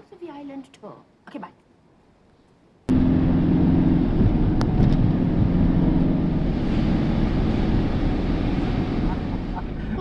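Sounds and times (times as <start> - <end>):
motor vehicle engine drone: 2.9 - 10.0
road noise: 2.9 - 10.0.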